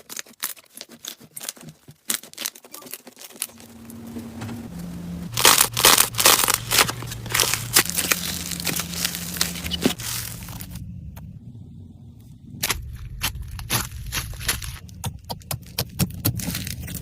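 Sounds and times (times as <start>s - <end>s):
slime crackling and popping: 5.4s - 10.8s, 12.6s - 17.0s.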